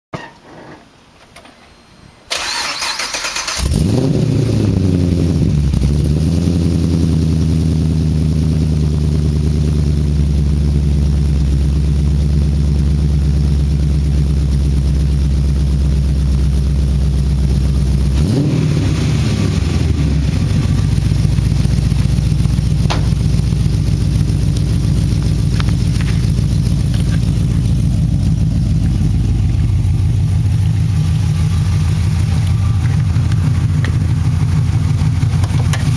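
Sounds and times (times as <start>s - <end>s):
car engine starting: 1.5s - 35.9s
car engine idling: 1.7s - 35.9s
engine revving: 2.3s - 9.8s, 17.6s - 35.9s.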